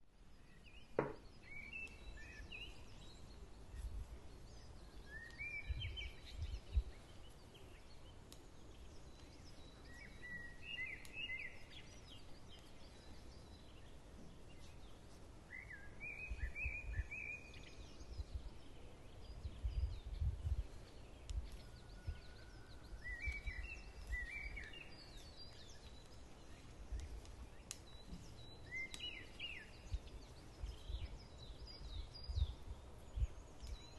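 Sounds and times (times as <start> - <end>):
faint background noise: 0.0 - 33.9.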